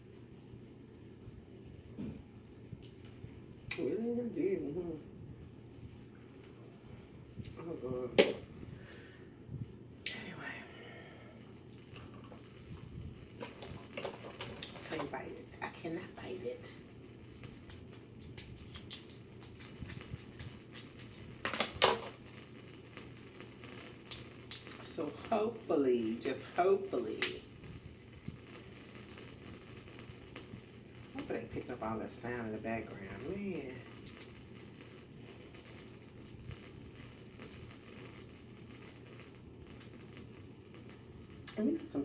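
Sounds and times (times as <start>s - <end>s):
background hiss: 0.0s - 42.0s
low electrical hum: 0.0s - 42.0s
crab shell sharp cracks: 24.1s - 24.8s.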